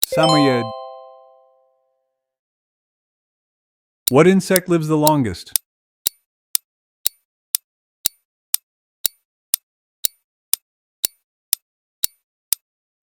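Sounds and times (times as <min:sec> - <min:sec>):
clock ticking: 0:04.1 - 0:12.6.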